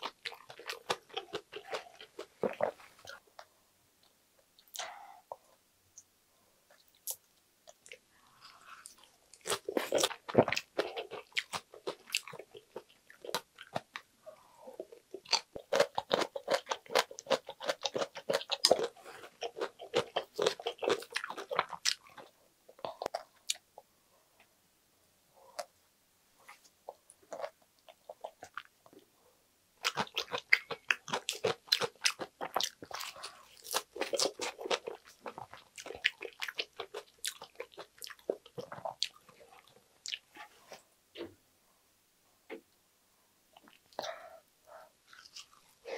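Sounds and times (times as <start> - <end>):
person chewing crunchy food: 0.0 - 3.2, 6.8 - 14.1, 14.7 - 23.6, 27.2 - 28.7, 29.8 - 40.3, 45.0 - 45.9.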